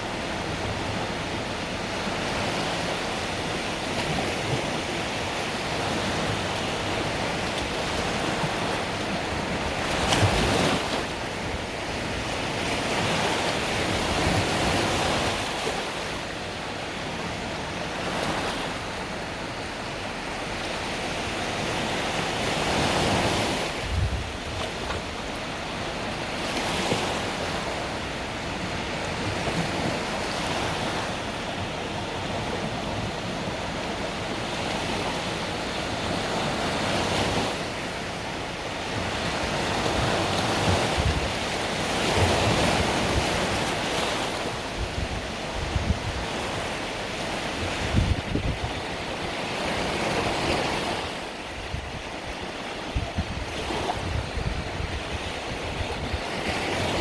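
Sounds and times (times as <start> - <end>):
sea waves breaking on beach: 0.0 - 57.0
wind rumble on microphone: 21.3 - 37.6, 38.8 - 57.0.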